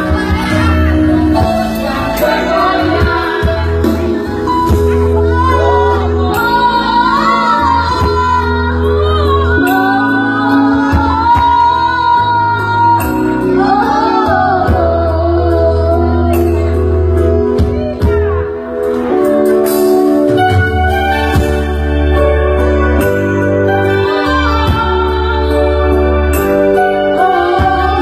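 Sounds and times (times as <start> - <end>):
instrumental accompaniment with bass: 0.0 - 28.0
child singing: 5.2 - 16.8.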